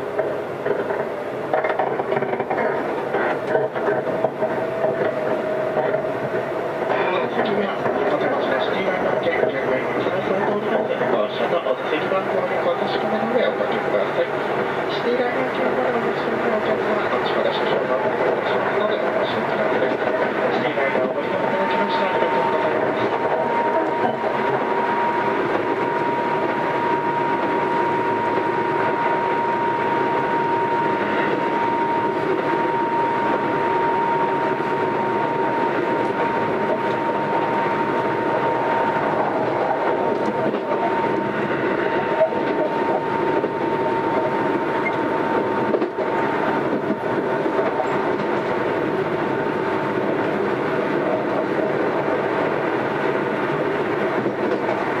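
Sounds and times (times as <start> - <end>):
train rumbling on rails: 0.0 - 55.0
train motor whine: 21.4 - 46.8.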